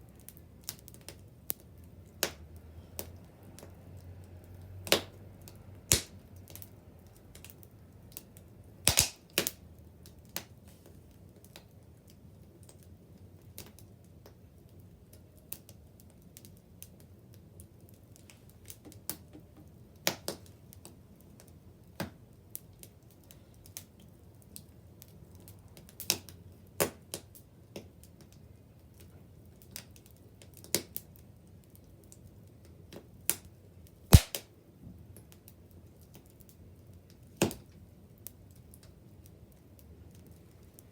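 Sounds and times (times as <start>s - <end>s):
bonfire snaps and pops: 0.0s - 40.9s
rush of flame: 8.9s - 9.2s, 34.1s - 34.4s.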